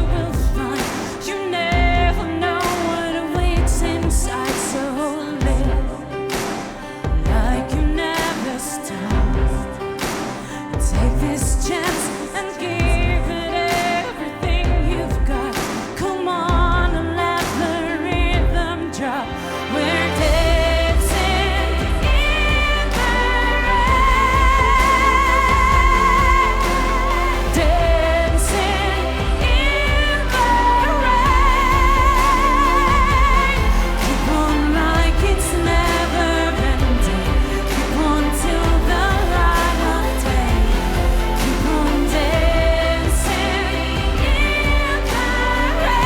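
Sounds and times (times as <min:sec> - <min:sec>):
bass: 0:00.0 - 0:01.0, 0:01.7 - 0:04.6, 0:05.4 - 0:06.3, 0:07.1 - 0:08.0, 0:09.1 - 0:09.9, 0:10.8 - 0:11.8, 0:12.8 - 0:13.7, 0:14.4 - 0:15.6, 0:16.5 - 0:46.0
pop band accompaniment: 0:00.0 - 0:46.0
woman singing with vibrato: 0:00.0 - 0:46.0
drum hits: 0:20.2 - 0:46.0.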